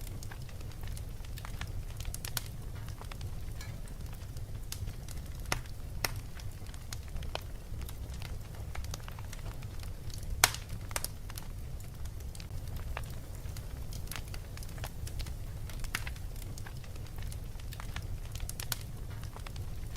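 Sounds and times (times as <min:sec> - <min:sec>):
wood fire crackling: 0:00.0 - 0:19.9.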